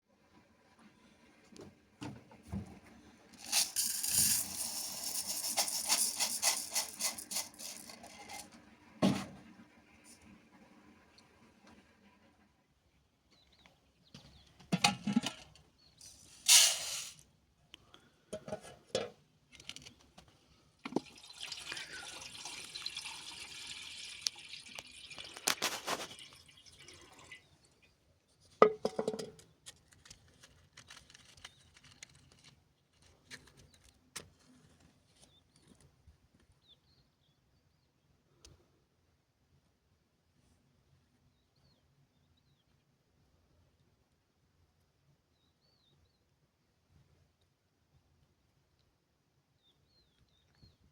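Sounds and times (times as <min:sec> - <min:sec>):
liquid pouring: 0:20.8 - 0:27.6
kitchenware clattering: 0:28.6 - 0:29.4.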